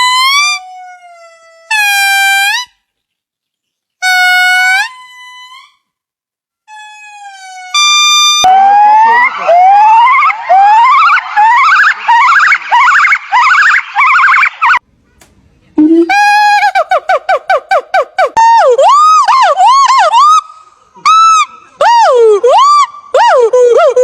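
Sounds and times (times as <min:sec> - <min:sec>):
rising primate whoops: 0:06.8 - 0:14.8, 0:18.2 - 0:24.0.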